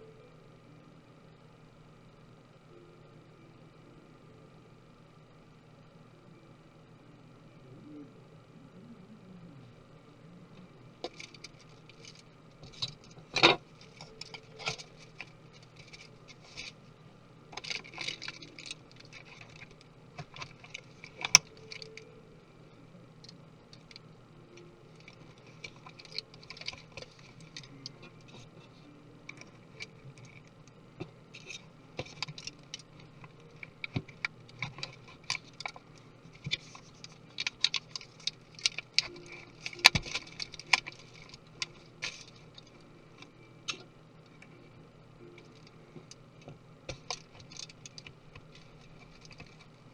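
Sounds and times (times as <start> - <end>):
small tools clicking and tapping: 11.0 - 16.8, 17.5 - 22.0, 24.9 - 44.5, 45.4 - 49.8.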